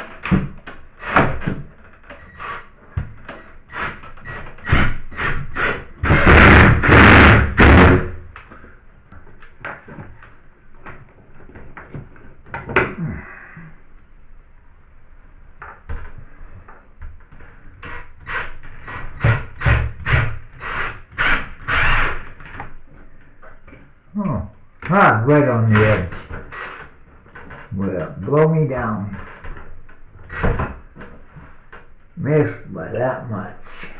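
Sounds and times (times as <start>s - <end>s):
loud noisy burst: 6.0s - 8.2s.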